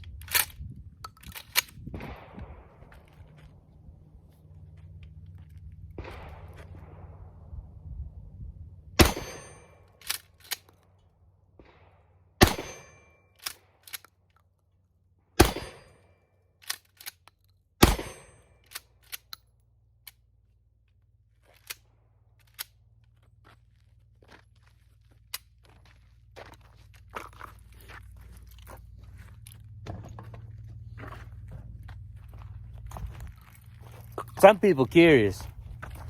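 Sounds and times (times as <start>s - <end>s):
gun handling clicks: 0.0s - 1.8s, 10.0s - 10.8s, 13.4s - 14.5s, 16.6s - 17.6s, 18.6s - 20.2s, 21.6s - 21.8s, 22.4s - 22.8s
shotgun shots: 6.0s - 7.4s, 9.0s - 9.8s, 11.6s - 13.0s, 15.4s - 16.0s, 17.8s - 18.3s.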